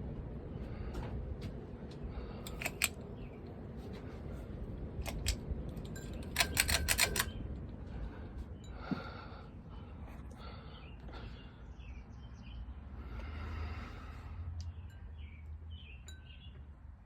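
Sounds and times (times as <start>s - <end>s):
ceiling fan running: 0.0s - 12.2s
sharp clicks: 2.5s - 3.0s, 5.0s - 7.4s.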